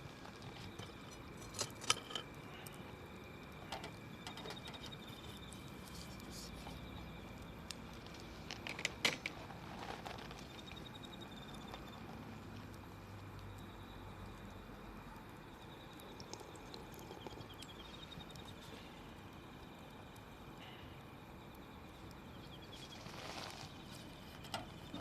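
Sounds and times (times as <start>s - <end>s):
fire pops: 0.0s - 14.4s
wood fire crackling: 0.0s - 25.0s.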